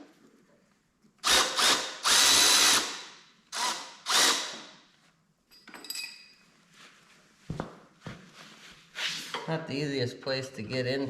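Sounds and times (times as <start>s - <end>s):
impact wrench bursts: 1.2s - 4.8s.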